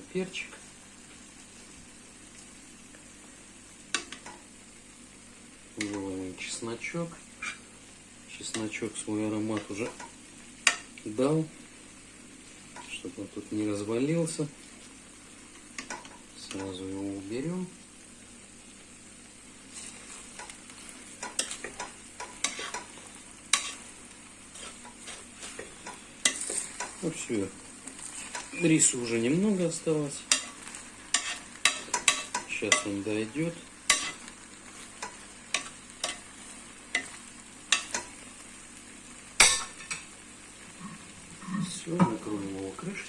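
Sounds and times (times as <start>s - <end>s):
faint sizzling: 0.0s - 43.0s
utensil scraping a pot: 19.7s - 27.1s, 30.3s - 33.0s.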